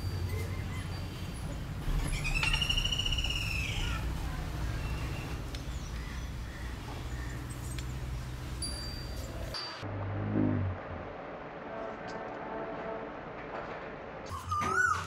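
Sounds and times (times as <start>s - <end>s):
bird whistled call: 2.1s - 4.0s, 14.3s - 15.0s.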